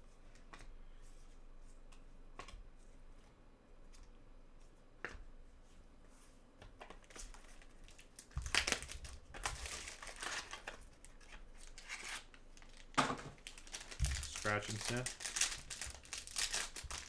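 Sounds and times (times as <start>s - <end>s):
wrapper crinkling and tearing: 7.0s - 17.0s.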